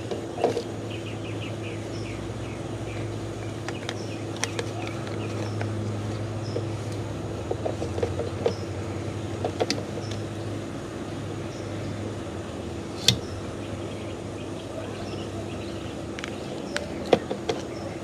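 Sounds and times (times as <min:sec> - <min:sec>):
steady low hum: 0:00.0 - 0:18.0
small parts clicking and tapping: 0:02.9 - 0:10.6, 0:12.9 - 0:13.6, 0:16.1 - 0:18.0.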